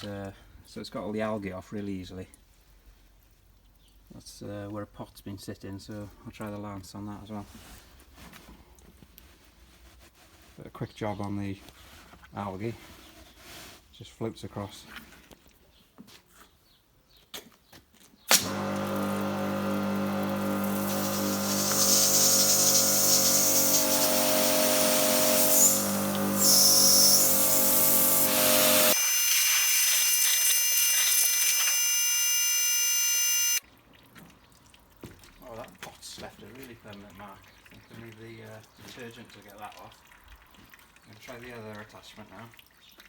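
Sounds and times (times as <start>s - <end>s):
pressure washer humming: 18.3s - 33.6s
water jet hissing: 18.3s - 33.6s
high whine: 25.7s - 33.6s.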